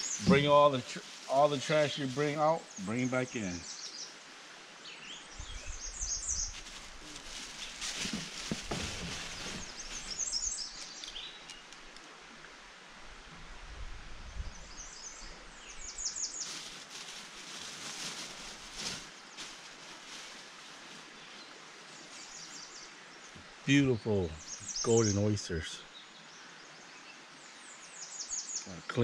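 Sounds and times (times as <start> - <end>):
rustling: 0.0 - 2.4, 6.0 - 12.1, 15.8 - 22.6
birds chirping: 0.0 - 4.2, 4.8 - 12.0, 14.3 - 29.0
outdoor background noise: 0.0 - 29.0.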